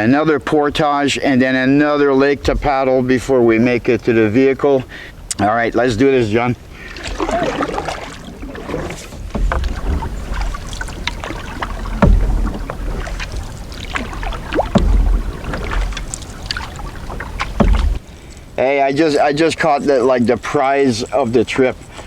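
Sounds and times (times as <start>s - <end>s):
paddle strokes in water: 6.7s - 18.1s
water drips and splashes: 6.7s - 18.1s
low thud: 8.8s - 18.0s.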